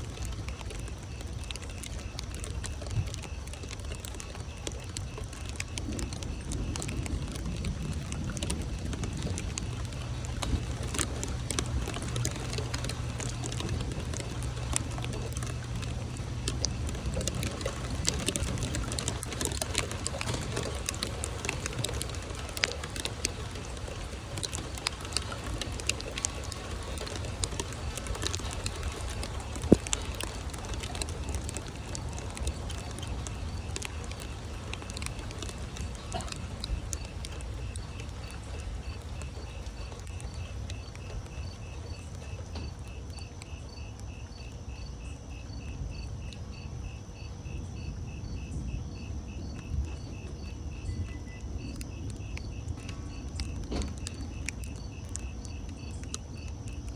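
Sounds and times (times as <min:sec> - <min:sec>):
rain falling: 0:00.0 - 0:56.9
raindrops ticking: 0:00.0 - 0:56.9
steady low rumble: 0:00.0 - 0:56.9.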